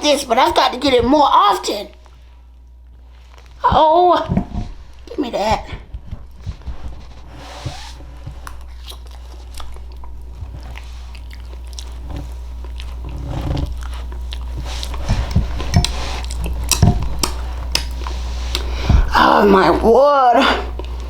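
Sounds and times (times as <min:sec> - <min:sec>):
steady low hum: 0:00.0 - 0:21.0
chewing and mouth clicks: 0:08.4 - 0:18.8, 0:20.7 - 0:21.0.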